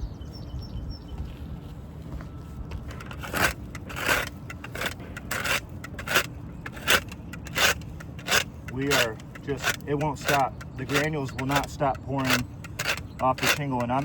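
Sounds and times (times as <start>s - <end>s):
brush scraping shingles: 2.9s - 14.0s.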